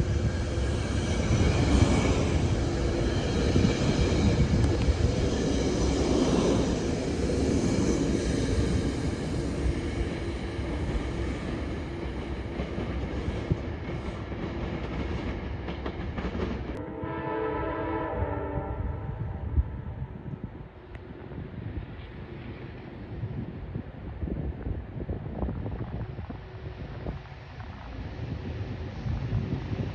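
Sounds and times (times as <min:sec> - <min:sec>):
train wheels on rails: 0:00.0 - 0:16.8
train horn chord: 0:16.8 - 0:20.2.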